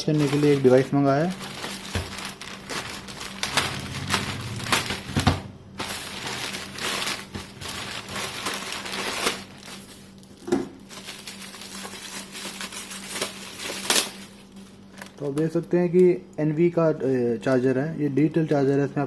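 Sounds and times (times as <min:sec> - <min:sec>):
packaging crinkling and rustling: 0:00.0 - 0:15.8.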